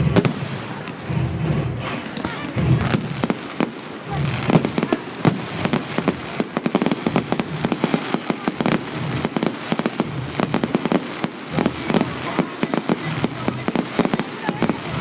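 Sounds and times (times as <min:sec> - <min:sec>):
low rumble: 0:00.0 - 0:06.4
fireworks bangs and crackling: 0:00.0 - 0:15.0.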